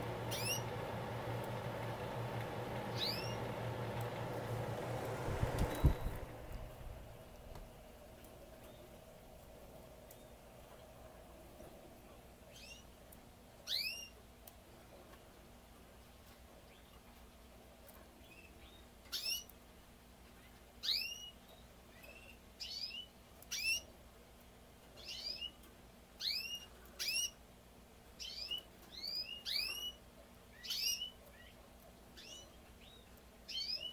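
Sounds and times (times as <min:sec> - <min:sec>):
canary chirping: 0:00.2 - 0:01.0, 0:02.9 - 0:03.7, 0:12.5 - 0:12.9, 0:13.6 - 0:14.2, 0:18.2 - 0:19.6, 0:20.3 - 0:24.0, 0:25.0 - 0:27.4, 0:28.2 - 0:31.6, 0:32.2 - 0:33.9.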